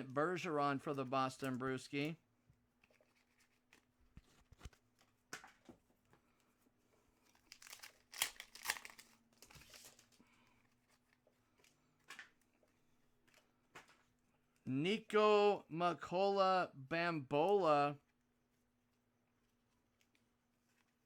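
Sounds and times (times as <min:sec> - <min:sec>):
foil wrapper crinkling and tearing: 0:07.2 - 0:10.2.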